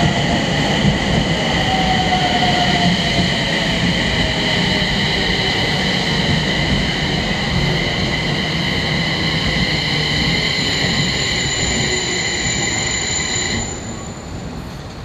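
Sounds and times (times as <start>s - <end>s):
electric train rumble: 0.0s - 15.0s
high squeal of held tones: 10.2s - 14.3s.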